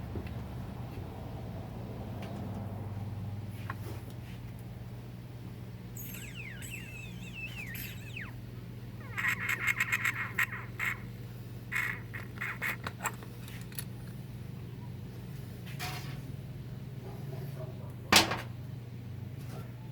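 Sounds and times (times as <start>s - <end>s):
steady low hum: 4.4s - 19.2s.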